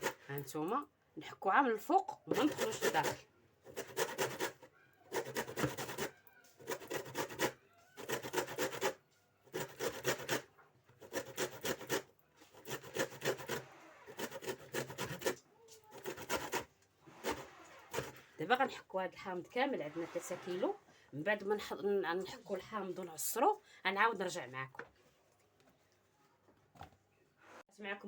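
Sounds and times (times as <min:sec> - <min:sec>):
lemon peel grating on grater: 0:02.3 - 0:18.3.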